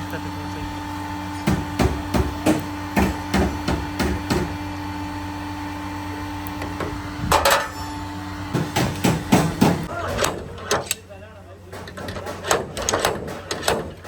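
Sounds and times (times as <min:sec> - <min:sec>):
steady hum: 0:00.0 - 0:14.0
hammer blows on car bodywork: 0:01.4 - 0:04.6, 0:06.8 - 0:10.9, 0:11.7 - 0:14.0.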